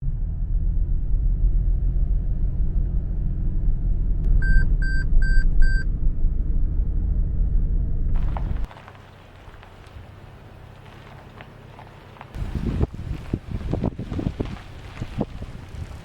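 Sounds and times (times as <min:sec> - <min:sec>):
loud low rumble: 0:00.0 - 0:08.7
short high electronic beeps: 0:04.4 - 0:05.8.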